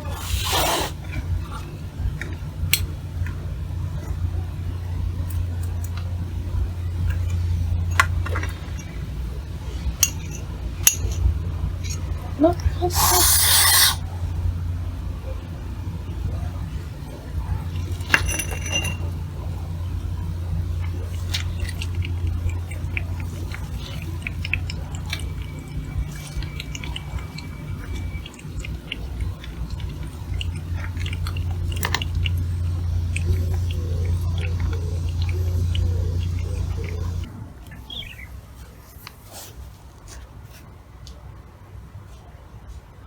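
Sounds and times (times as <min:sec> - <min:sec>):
steady low hum: 0:00.0 - 0:38.9
chewing clicks and crunches: 0:20.2 - 0:37.3.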